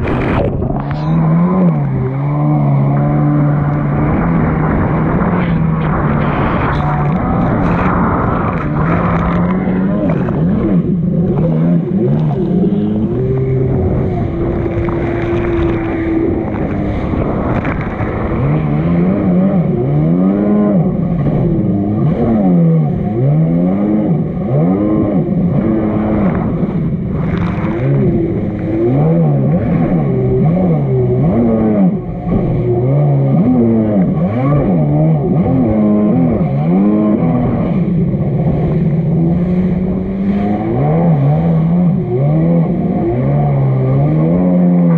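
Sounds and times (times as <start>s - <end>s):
personal watercraft engine running: 0.0s - 44.9s.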